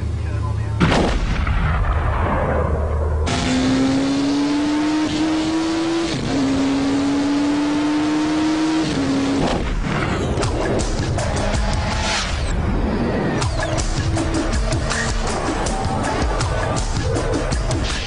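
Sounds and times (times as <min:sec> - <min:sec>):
motorcycle engine revving: 0:03.2 - 0:12.5, 0:13.4 - 0:17.9.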